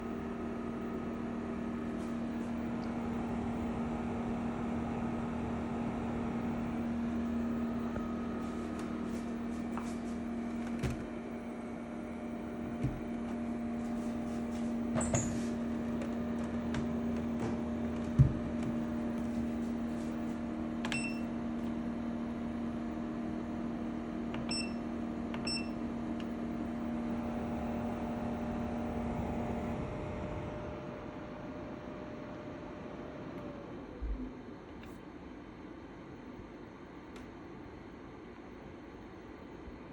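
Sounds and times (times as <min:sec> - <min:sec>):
air conditioner humming: 0:00.0 - 0:39.9.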